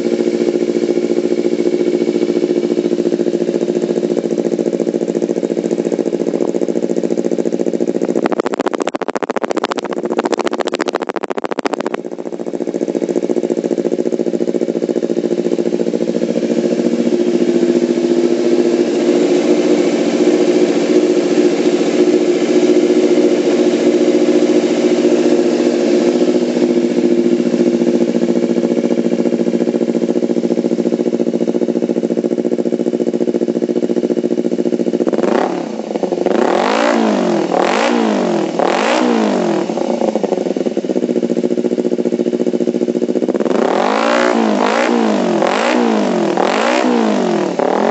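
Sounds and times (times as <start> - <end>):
motorcycle engine idling: 0.0 - 47.9
exhaust crackling: 7.8 - 13.6.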